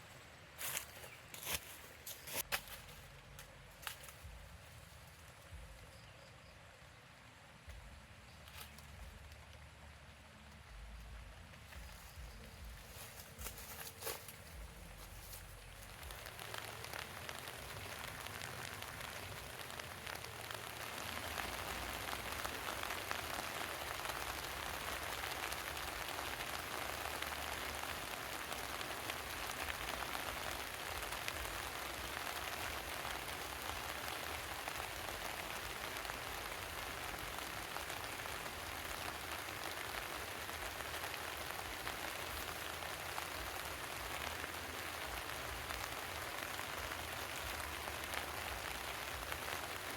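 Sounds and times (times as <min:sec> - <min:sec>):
heavy rain falling: 0:14.5 - 0:49.9.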